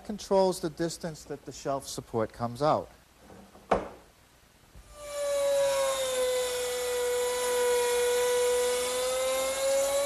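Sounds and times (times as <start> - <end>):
electric router whining: 4.9 - 10.0.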